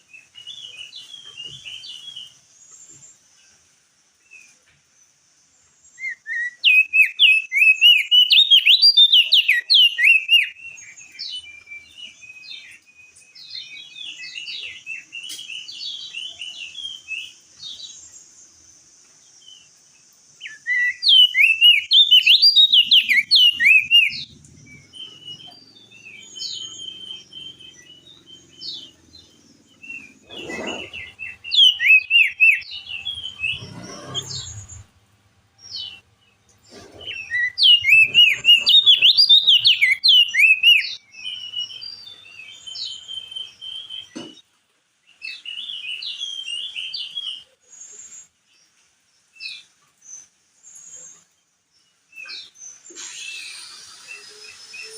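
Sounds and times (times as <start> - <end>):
bird singing chattering warble: 5.9 - 18.4, 19.5 - 35.0, 35.6 - 44.2
soft bird calls: 19.6 - 35.0, 35.6 - 44.5.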